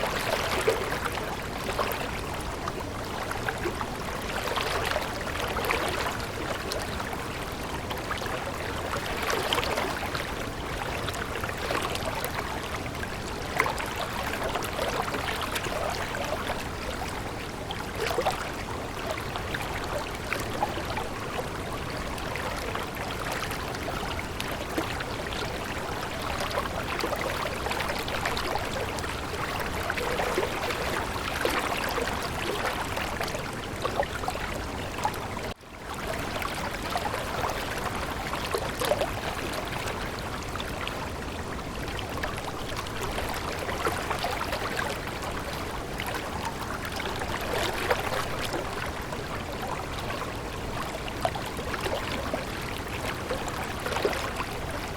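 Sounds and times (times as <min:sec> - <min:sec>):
stream water flowing and trickling: 0:00.0 - 0:54.9.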